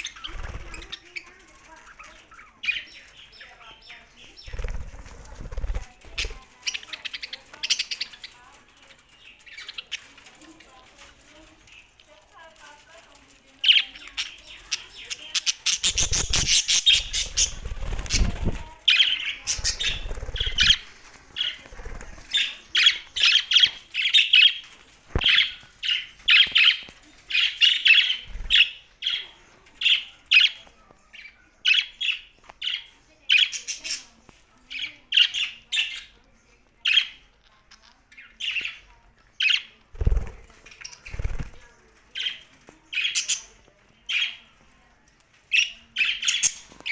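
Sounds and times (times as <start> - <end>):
budgerigars chirping and squawking: 0.0 - 11.0, 13.6 - 36.2, 45.5 - 46.9.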